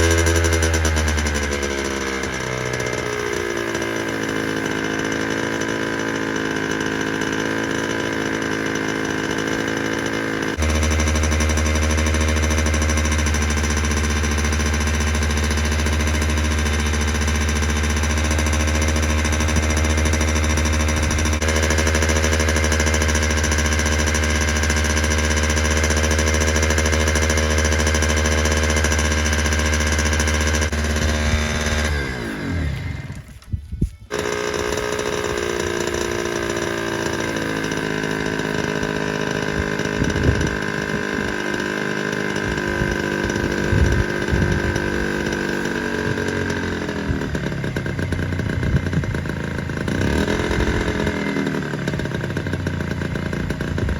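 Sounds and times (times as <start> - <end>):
two-stroke engine running: 0.0 - 53.9.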